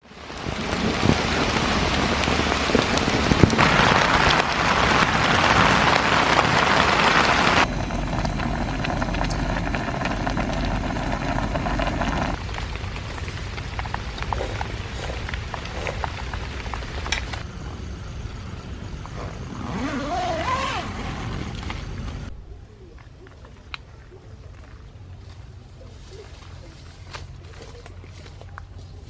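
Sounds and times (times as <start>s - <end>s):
heavy rain falling: 0.0s - 17.7s.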